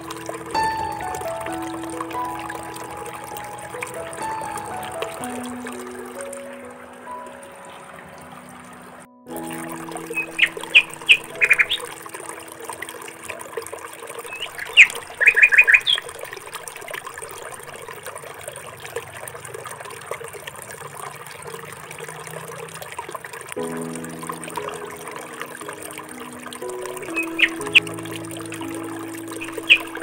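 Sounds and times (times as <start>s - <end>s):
soft background music: 0.0s - 16.7s, 23.5s - 30.0s
steady hiss of flowing water: 0.0s - 30.0s
small birds chirping: 10.0s - 12.0s, 14.2s - 16.2s, 26.9s - 28.0s, 28.6s - 30.0s.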